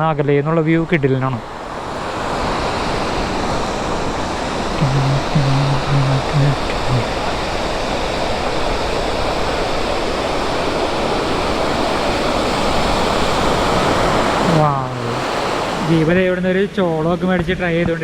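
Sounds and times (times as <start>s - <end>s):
low voice: 0.0s - 1.4s, 4.8s - 7.3s, 14.5s - 16.6s
waterfall roaring: 0.0s - 16.4s.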